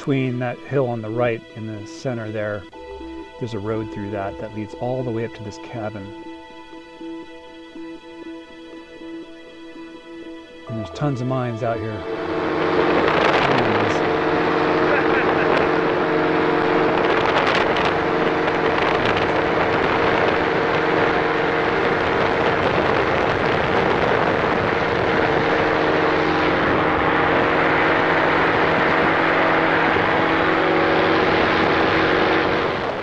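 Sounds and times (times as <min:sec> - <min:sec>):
paraglider engine droning: 0:10.5 - 0:33.0
wind rushing over microphone: 0:11.8 - 0:33.0.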